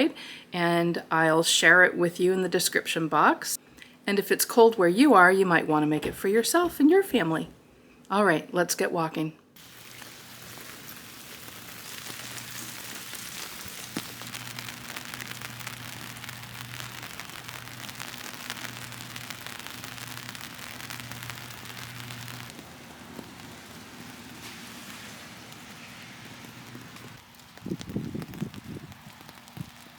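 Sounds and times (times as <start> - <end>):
steady rain falling: 9.6 - 29.9.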